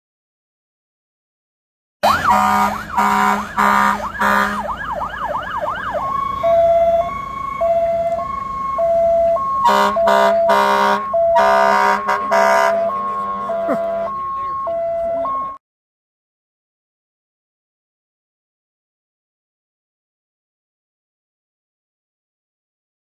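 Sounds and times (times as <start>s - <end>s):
short horn blasts: 2.0s - 4.7s, 9.6s - 14.1s
emergency vehicle siren: 2.0s - 15.6s.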